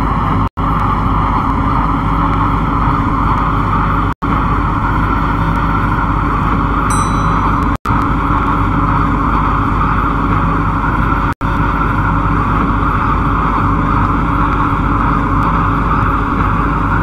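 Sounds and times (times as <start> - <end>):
train rumbling at speed: 0.0 - 17.0.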